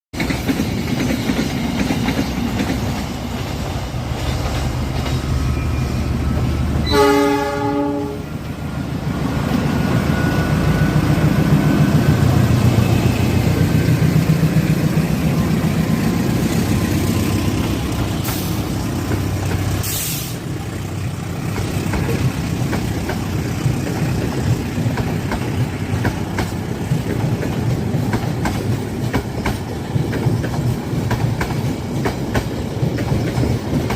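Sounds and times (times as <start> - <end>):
diesel locomotive engines: 0.2 - 33.9
train horn blast: 6.8 - 8.4
wheels clacking over rail joints: 11.9 - 20.1, 21.2 - 33.9.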